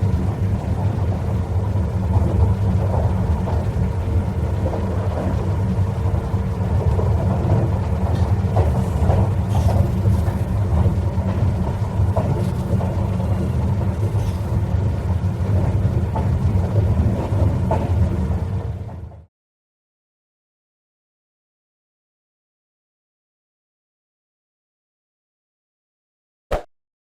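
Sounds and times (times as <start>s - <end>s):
train rumbling on rails: 0.0s - 19.3s.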